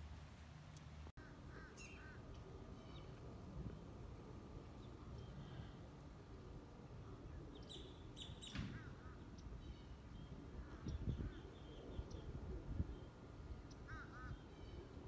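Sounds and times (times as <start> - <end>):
small birds chirping: 7.0 - 15.0.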